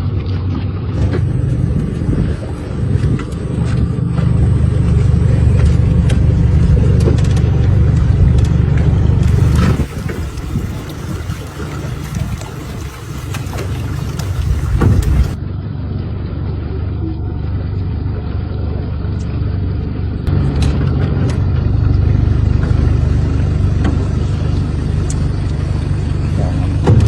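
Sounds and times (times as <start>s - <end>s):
steady low rumble: 1.0s - 15.4s.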